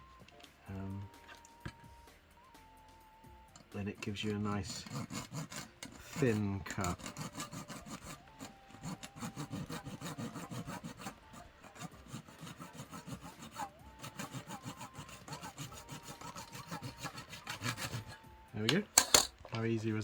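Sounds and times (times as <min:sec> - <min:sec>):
razor saw cutting plastic: 0:04.0 - 0:19.4.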